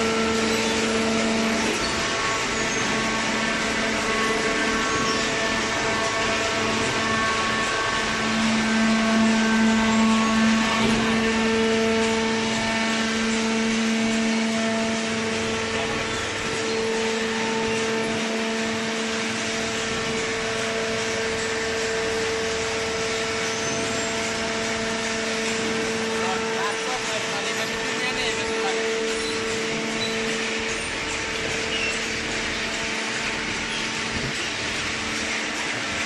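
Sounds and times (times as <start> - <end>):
hydraulic baler machine hum: 0.0 - 36.0.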